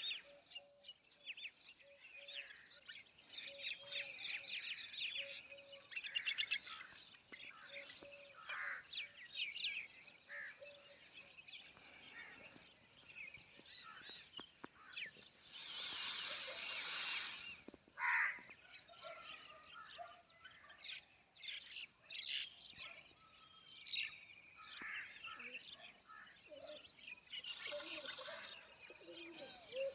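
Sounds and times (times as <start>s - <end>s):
small birds chirping and trilling: 0.0s - 29.9s
loud bird call: 15.5s - 18.4s.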